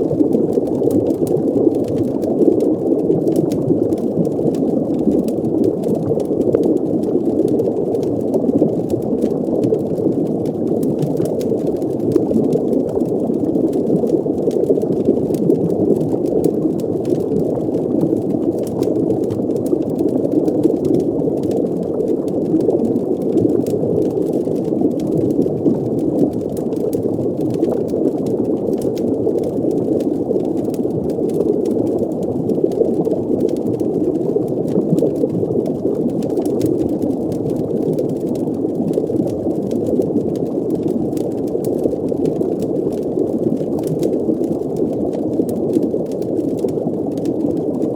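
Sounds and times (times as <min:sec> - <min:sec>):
faint fire crackles: 0:00.0 - 0:47.9.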